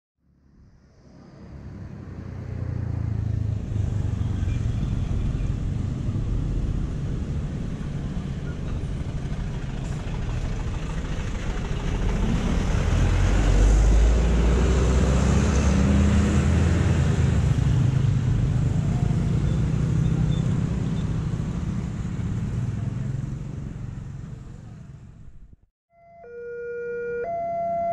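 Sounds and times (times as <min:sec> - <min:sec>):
traffic noise: 0:00.2 - 0:27.9
motor engines humming: 0:00.9 - 0:25.4.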